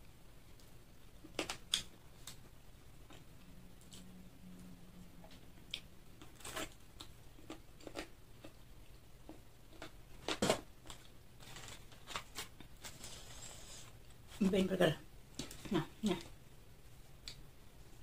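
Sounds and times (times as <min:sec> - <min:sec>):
person chewing crunchy food: 0:05.6 - 0:13.8.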